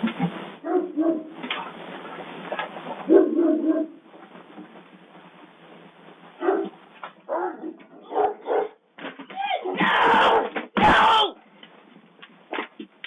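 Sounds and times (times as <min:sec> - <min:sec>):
steady hiss: 0:00.0 - 0:00.6, 0:01.4 - 0:03.1, 0:04.0 - 0:07.1
animal barking: 0:00.6 - 0:01.4, 0:03.1 - 0:04.0, 0:06.4 - 0:08.8.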